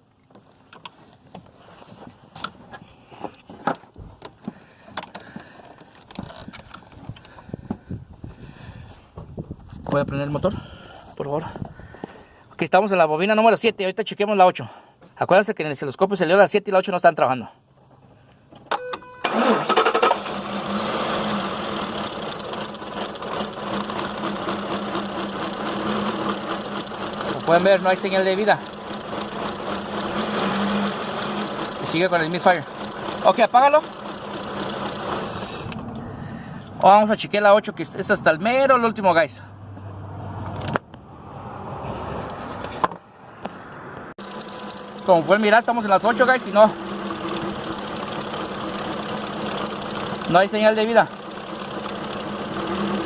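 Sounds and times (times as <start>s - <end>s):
starter cranking: 19.3s - 36.0s, 44.2s - 53.0s
misfiring engine idling: 20.2s - 36.2s, 44.2s - 53.0s.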